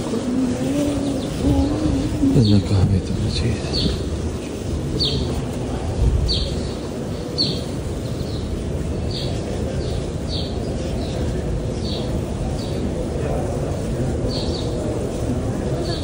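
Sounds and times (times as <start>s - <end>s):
crowd murmur in a hall: 0.0s - 16.0s.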